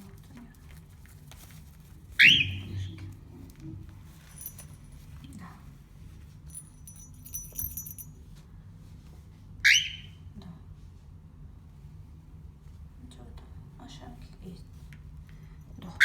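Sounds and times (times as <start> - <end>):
cockatiel chick call: 9.7 - 10.1.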